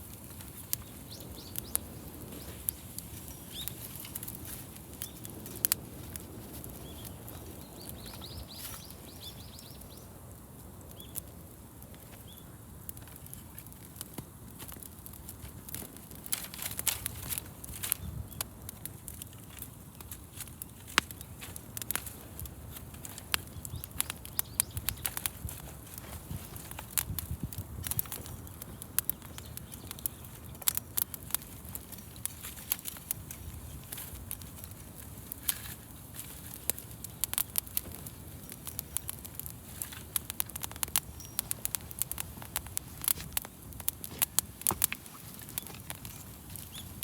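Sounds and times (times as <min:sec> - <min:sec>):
wood fire crackling and popping: 0:00.0 - 0:47.0
small birds chirping: 0:00.3 - 0:10.2, 0:10.9 - 0:11.3, 0:23.0 - 0:25.5, 0:27.8 - 0:32.4, 0:36.5 - 0:42.9, 0:44.6 - 0:47.0.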